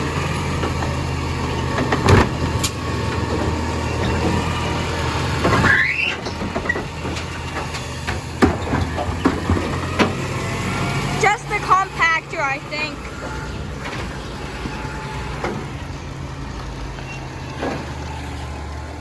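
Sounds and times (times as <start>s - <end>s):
garbage truck engine running: 0.0s - 19.0s.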